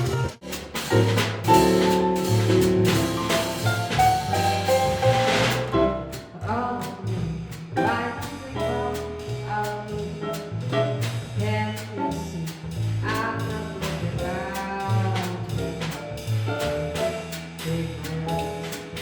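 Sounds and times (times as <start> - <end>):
horn melody with sliding notes: 0.0 - 5.7
bass line: 0.0 - 19.0
short drum strokes: 0.0 - 19.0.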